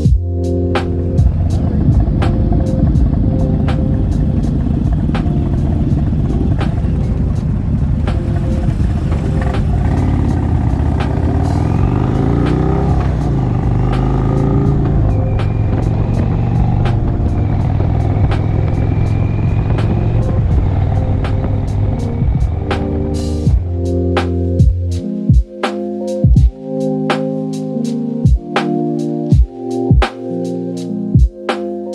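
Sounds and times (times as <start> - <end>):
motorcycle engines running: 0.0 - 25.0
background music with beat: 0.0 - 31.9.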